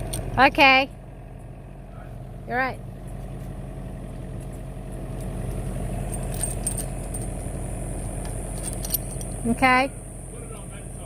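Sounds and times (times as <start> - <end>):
metal chain clinking: 0.0 - 0.4, 5.2 - 9.8
engine idling: 0.0 - 11.0.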